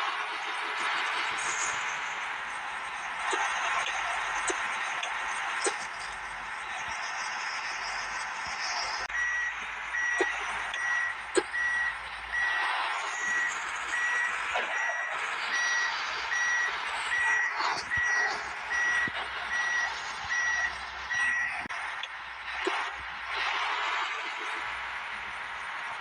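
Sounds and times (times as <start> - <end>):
truck reversing alarm beeping: 0.8 - 23.4.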